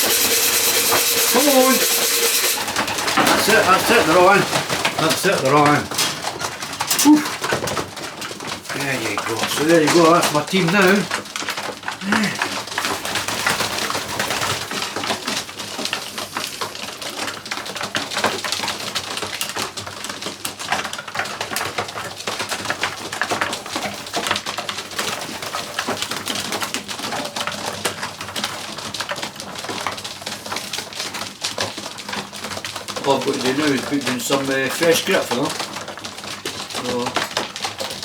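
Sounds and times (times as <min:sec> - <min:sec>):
pigeons rustling: 0:00.0 - 0:38.0
pigeons cooing: 0:02.0 - 0:07.4.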